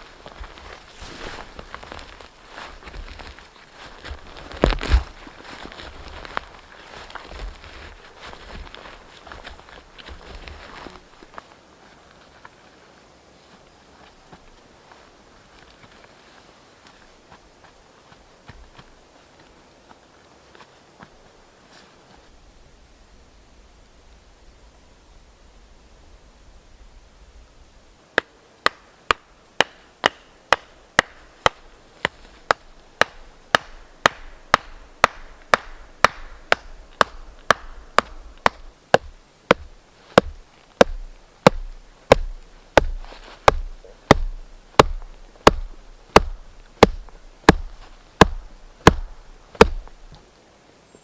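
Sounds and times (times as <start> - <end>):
axe chopping wood: 28.2 - 49.9.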